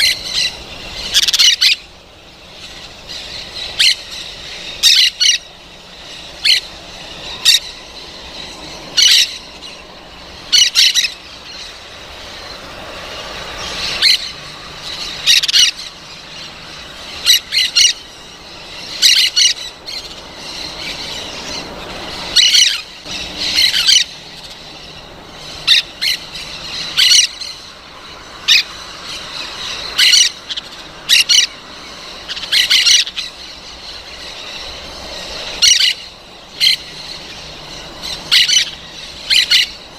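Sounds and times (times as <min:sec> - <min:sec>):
parrot squawking: 0:00.0 - 0:01.9, 0:02.5 - 0:12.6, 0:13.5 - 0:27.7, 0:28.4 - 0:39.9.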